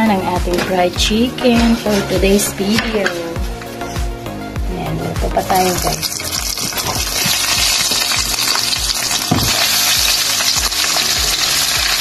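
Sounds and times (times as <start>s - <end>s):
chicken frying in hot oil: 5.8s - 12.0s.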